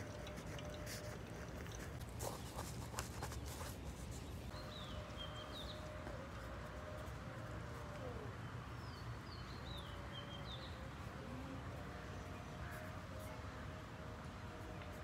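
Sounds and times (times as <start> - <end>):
small birds chirping: 1.9 - 6.2.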